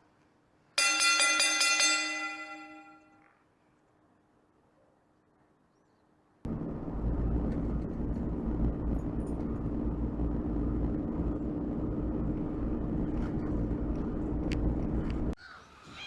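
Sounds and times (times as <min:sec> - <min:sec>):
vehicle engine and road noise: 0:06.5 - 0:15.4.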